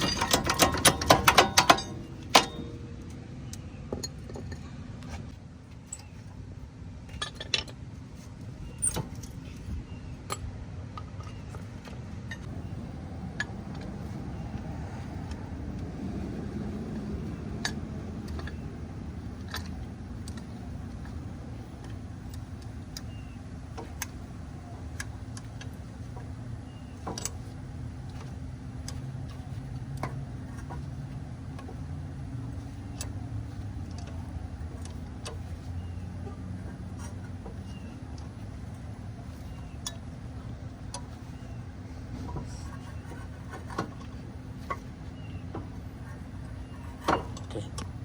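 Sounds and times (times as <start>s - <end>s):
hand tools clicking on metal: 0.0s - 2.8s
steady low hum: 0.0s - 48.0s.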